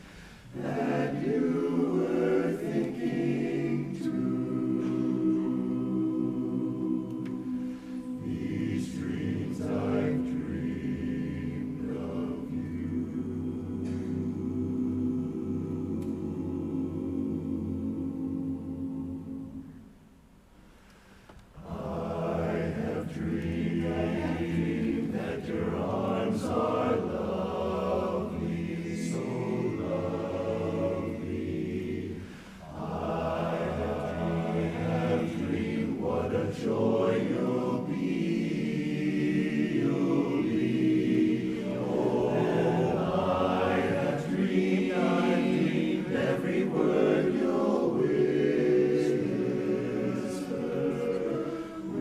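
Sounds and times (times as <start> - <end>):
barbershop chorus singing a cappella: 0.0 - 19.9, 21.6 - 52.0.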